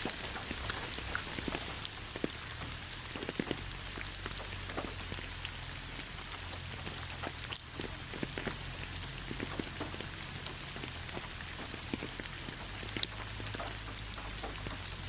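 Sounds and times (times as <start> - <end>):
raindrops tapping: 0.0 - 15.0
steady rain: 0.0 - 15.0.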